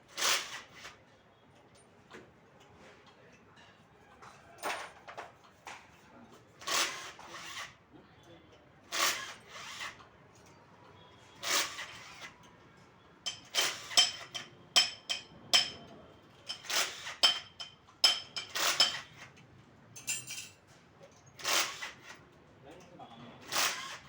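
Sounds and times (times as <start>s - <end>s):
metal tools clinking: 16.5s - 19.1s, 20.0s - 20.6s.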